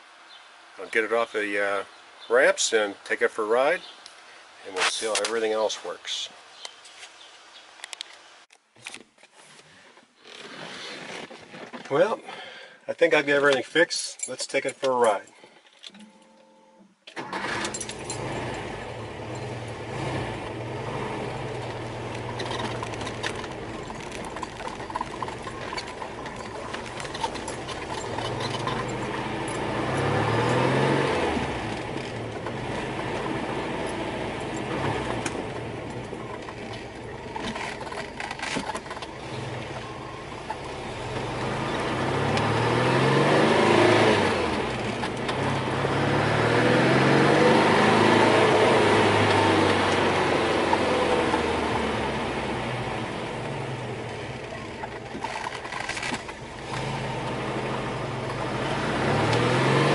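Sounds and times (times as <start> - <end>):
car engine revving: 17.2 - 59.9.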